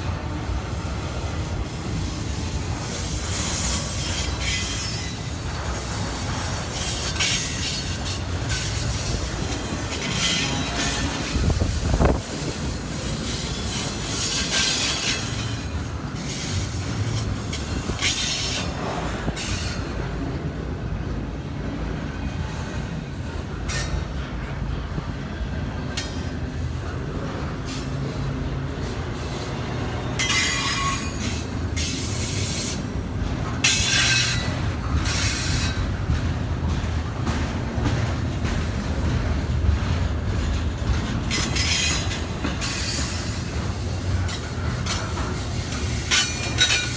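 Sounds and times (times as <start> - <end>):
freight train cars rumbling: 0.0 - 46.9
train wheels squealing: 2.9 - 11.4, 12.8 - 19.9, 25.4 - 32.9, 40.5 - 46.9.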